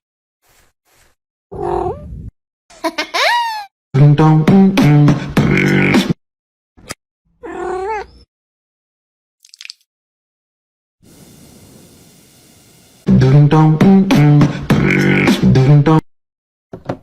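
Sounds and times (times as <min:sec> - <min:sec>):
beatbox vocal music: 0:04.1 - 0:06.2, 0:13.5 - 0:16.0
cat meowing: 0:07.4 - 0:08.2
faint hiss: 0:11.1 - 0:13.0.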